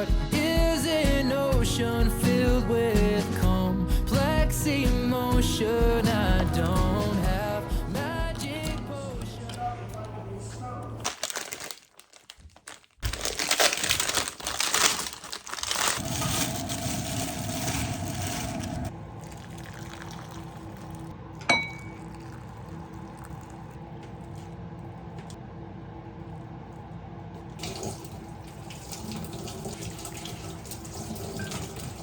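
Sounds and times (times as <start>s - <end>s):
loud rustling: 11.0s - 18.9s.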